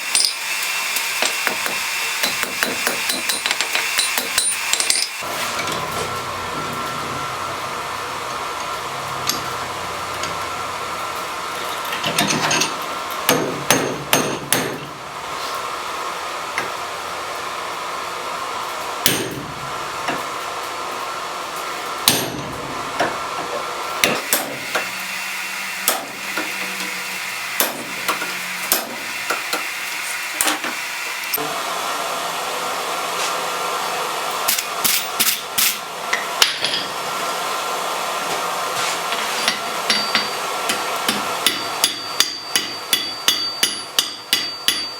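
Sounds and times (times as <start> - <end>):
hammer striking metal on anvil: 0.0 - 5.7, 9.2 - 9.6, 12.0 - 15.0, 19.0 - 20.2, 22.0 - 23.2, 24.0 - 25.1, 25.8 - 29.7, 34.5 - 36.9, 39.5 - 44.9.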